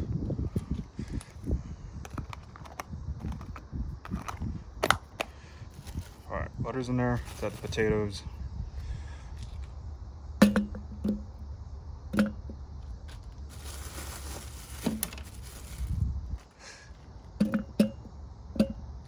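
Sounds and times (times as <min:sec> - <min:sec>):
rustling: 0:12.8 - 0:17.3
potatoes dropping into metal pot: 0:13.1 - 0:16.0.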